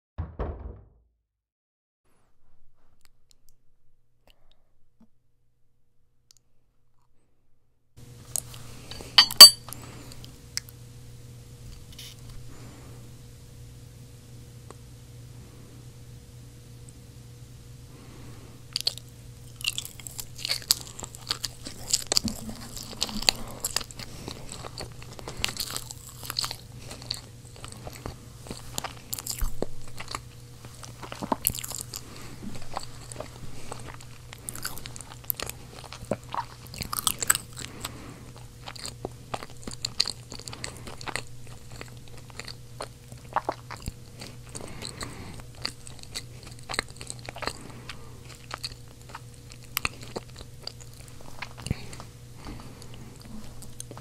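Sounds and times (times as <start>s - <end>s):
steady low hum: 7.4s - 54.0s
chewing crunchy potatoes: 8.2s - 10.8s, 17.9s - 54.0s.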